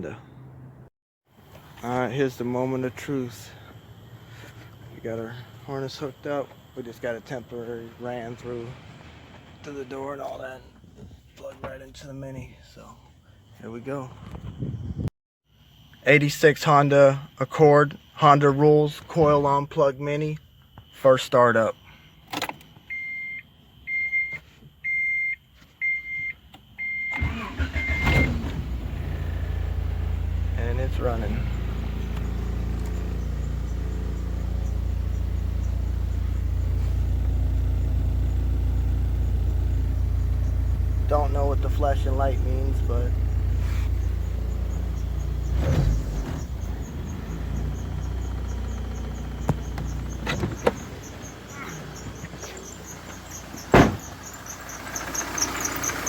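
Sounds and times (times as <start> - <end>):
car engine cranking and starting: 7.0 - 12.1, 26.8 - 56.0
car warning chime beeping: 22.8 - 28.4, 37.8 - 56.0.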